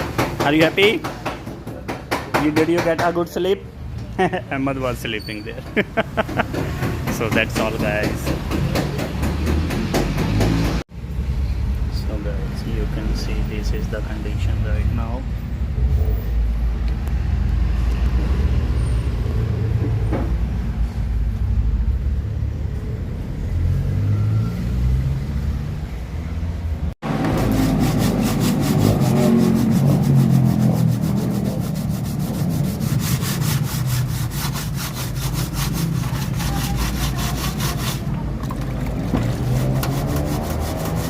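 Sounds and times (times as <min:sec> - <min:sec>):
vehicle rumble: 0:07.9 - 0:34.4, 0:35.6 - 0:41.0
rasping scrape on car bodywork: 0:27.1 - 0:38.2, 0:39.1 - 0:41.0.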